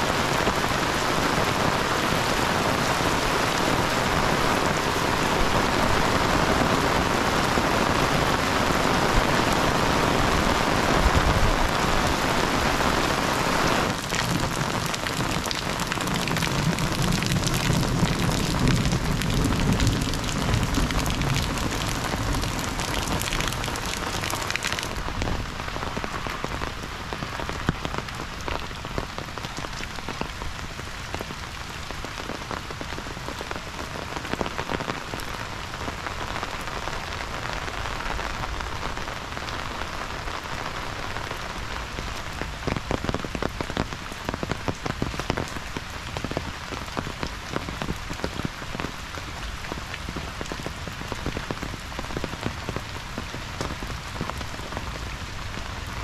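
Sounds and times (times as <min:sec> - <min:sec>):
heavy rain: 0:00.0 - 0:56.0
raindrops ticking: 0:13.9 - 0:35.4.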